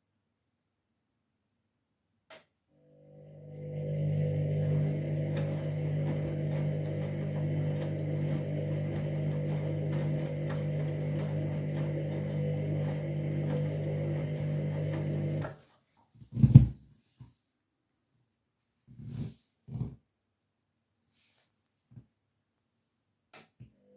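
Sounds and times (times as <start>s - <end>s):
washing machine drum humming: 3.0s - 15.4s.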